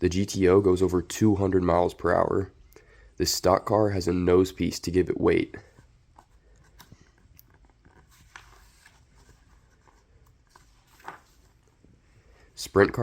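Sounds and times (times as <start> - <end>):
soft rustle: 5.6 - 12.6.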